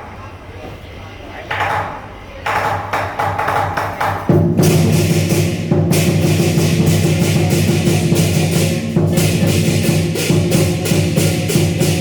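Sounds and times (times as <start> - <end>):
drum beating fast: 2.5 - 12.0
cymbals clashing: 3.4 - 12.0.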